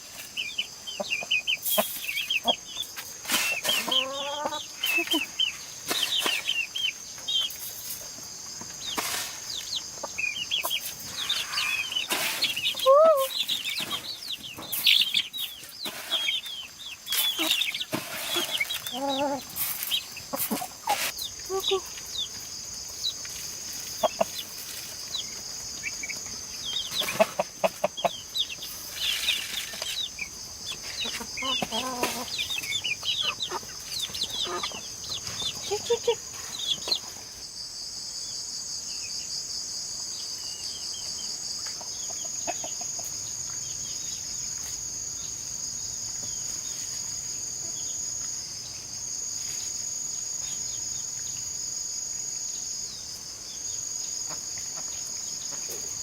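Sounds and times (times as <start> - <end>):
chickens clucking: 0.0 - 37.4, 41.4 - 43.9, 54.2 - 56.0
insects droning: 0.0 - 56.0.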